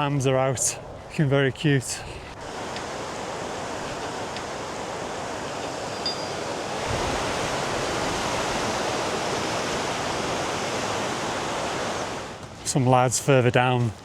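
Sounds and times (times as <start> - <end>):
river water rushing: 2.3 - 12.5.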